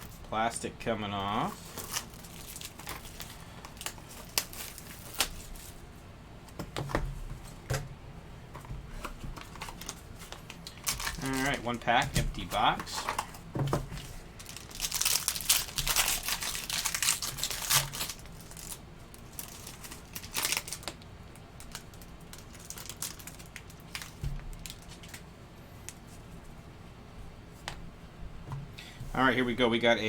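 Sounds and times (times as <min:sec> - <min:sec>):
wrapper tearing and crinkling: 0:01.6 - 0:05.8, 0:10.6 - 0:11.6, 0:14.4 - 0:21.0, 0:21.6 - 0:25.2.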